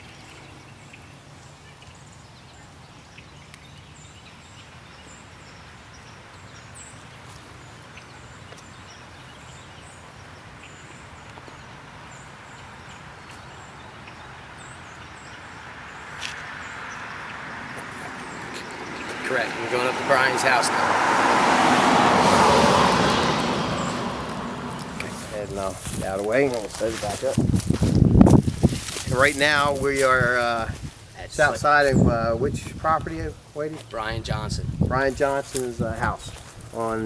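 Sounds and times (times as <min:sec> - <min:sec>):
vehicle rushing on road: 0:14.4 - 0:28.5.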